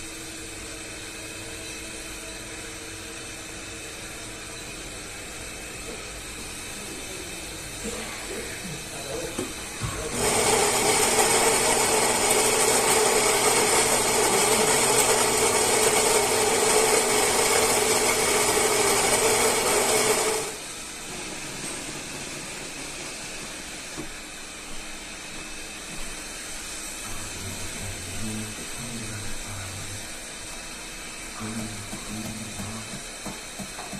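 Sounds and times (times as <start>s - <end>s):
espresso machine whirring: 0.0s - 33.9s
quiet steady machine noise: 0.0s - 33.9s.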